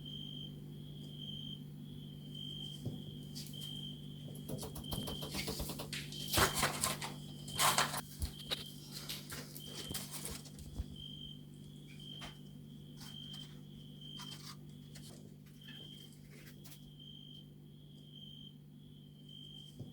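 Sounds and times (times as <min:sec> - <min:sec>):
cricket chirping: 0:00.0 - 0:19.9
rustling and handling noises: 0:05.3 - 0:17.0.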